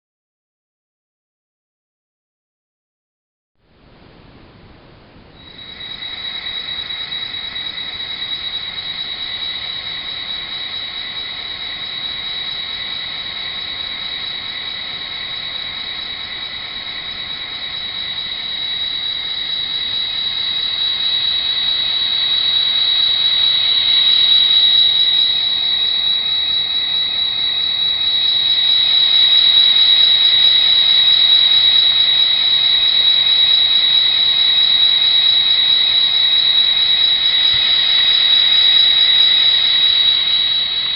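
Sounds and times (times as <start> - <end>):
steady high whine: 3.6 - 40.9.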